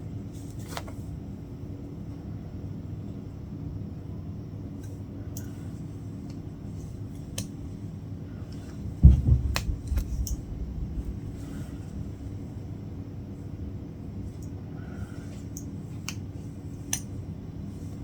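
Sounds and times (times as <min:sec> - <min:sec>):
steady low hum: 0:07.6 - 0:18.0
low thump: 0:09.0 - 0:11.8.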